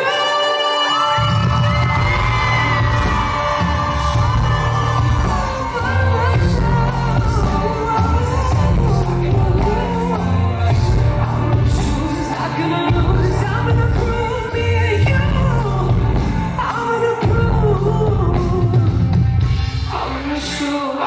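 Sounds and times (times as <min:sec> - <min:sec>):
live band playing pop: 0:00.0 - 0:21.0
person singing: 0:00.0 - 0:21.0
heavy bass: 0:01.2 - 0:20.7.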